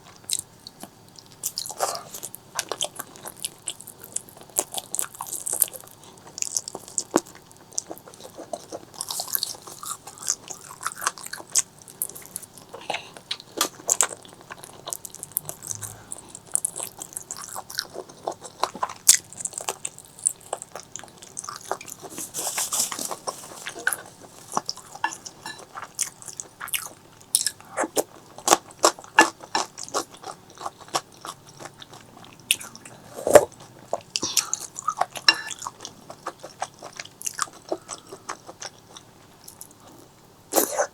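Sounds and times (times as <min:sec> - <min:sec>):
person chewing food: 0:00.0 - 0:40.9.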